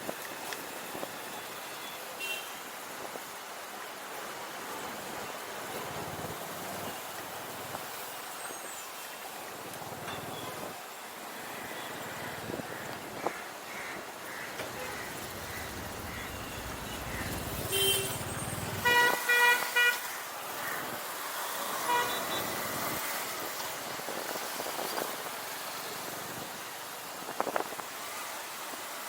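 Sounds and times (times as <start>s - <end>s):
street traffic: 0.1s - 29.0s
motorcycle riding noise: 5.5s - 8.0s, 9.5s - 10.8s, 14.3s - 27.9s
vehicle horns honking: 14.6s - 20.1s, 21.6s - 22.7s
motorcycle engine running: 14.8s - 18.9s.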